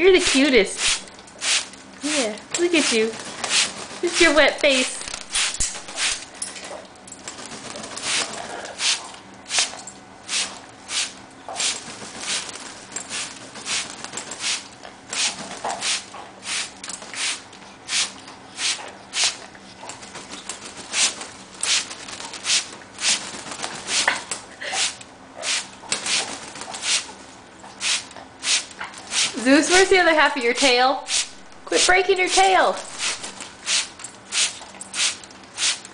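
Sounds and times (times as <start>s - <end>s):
spray bottle squirting: 0.3s - 1.8s, 2.8s - 6.3s, 10.3s - 19.4s, 20.7s - 24.2s, 24.8s - 27.1s, 27.8s - 29.9s, 31.1s - 35.9s.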